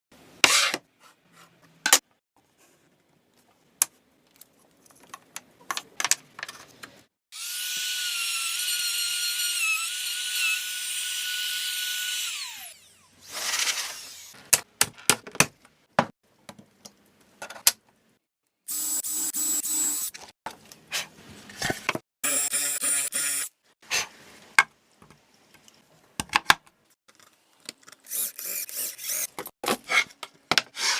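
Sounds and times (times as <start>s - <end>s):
small power drill whining: 7.3s - 14.4s, 22.2s - 23.5s, 28.1s - 29.3s.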